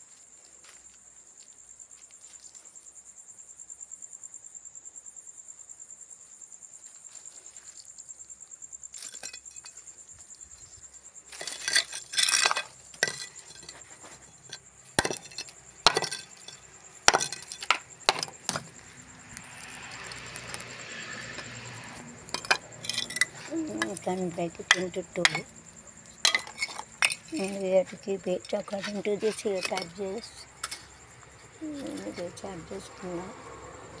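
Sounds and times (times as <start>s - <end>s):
crickets chirping: 0.0s - 34.0s
scraping: 8.9s - 33.2s
hard objects clinking and knocking: 9.0s - 9.8s, 11.3s - 33.0s.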